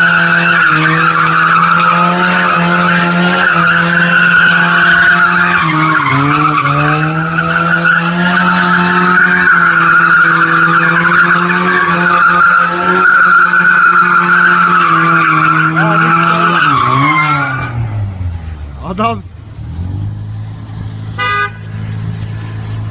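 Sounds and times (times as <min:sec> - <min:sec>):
tyres squealing: 0:00.0 - 0:17.8
car engine at high revs: 0:00.0 - 0:18.8, 0:19.4 - 0:22.9.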